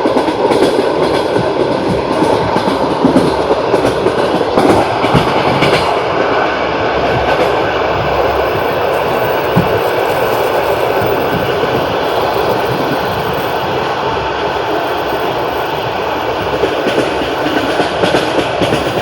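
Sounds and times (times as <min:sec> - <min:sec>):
train rumbling on rails: 0:00.0 - 0:19.0
wheels clattering over rail joints: 0:07.0 - 0:19.0.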